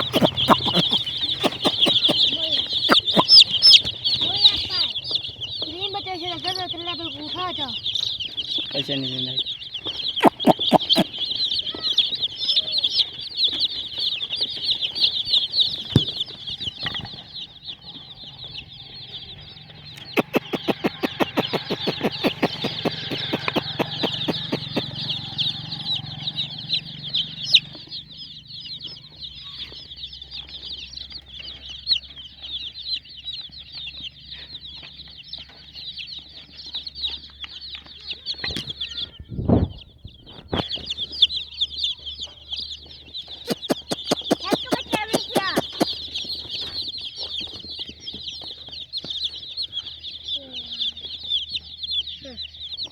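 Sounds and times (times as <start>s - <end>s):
fast run of clicks: 0.0s - 2.2s, 2.9s - 4.0s, 10.2s - 11.1s, 20.0s - 24.9s, 43.5s - 46.0s
chicks peeping: 0.0s - 52.9s.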